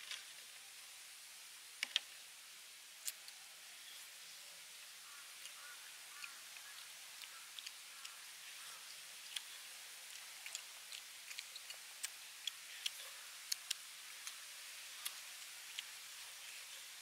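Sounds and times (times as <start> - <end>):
steady hiss: 0.0 - 17.0
people chewing and tearing meat: 5.4 - 17.0.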